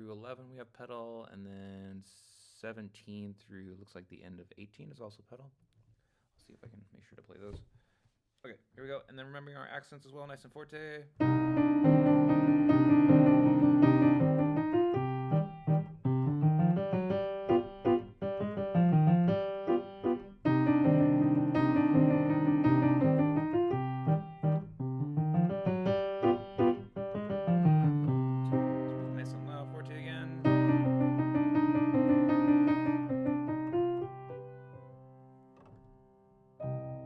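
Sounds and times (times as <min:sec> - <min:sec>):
piano piece: 0:11.2 - 0:37.0.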